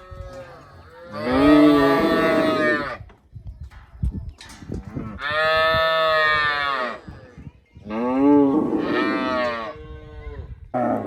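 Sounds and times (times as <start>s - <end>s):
cow mooing: 1.1s - 2.8s.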